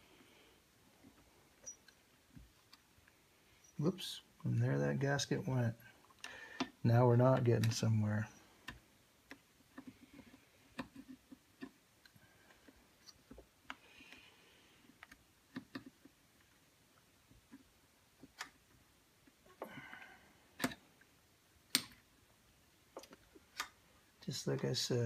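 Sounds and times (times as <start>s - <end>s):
small parts clicking and tapping: 8.6s - 19.7s, 20.6s - 22.1s.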